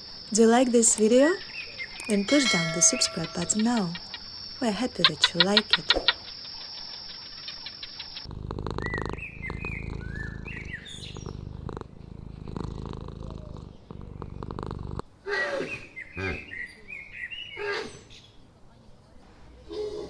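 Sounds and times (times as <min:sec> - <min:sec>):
birds chirping: 0:00.4 - 0:15.0
cat purring: 0:02.3 - 0:15.0.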